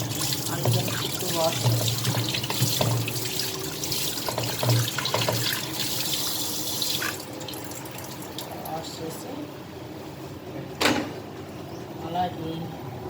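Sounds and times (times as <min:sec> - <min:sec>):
tap running into sink: 0:04.2 - 0:05.7.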